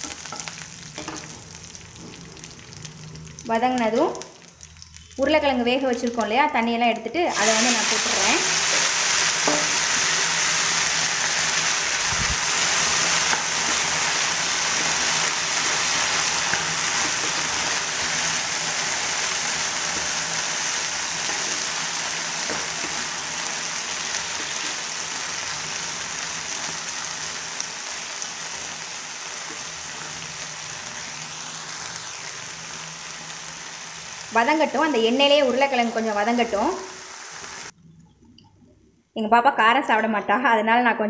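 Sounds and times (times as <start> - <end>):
potatoes sizzling in hot oil: 0.0 - 37.8.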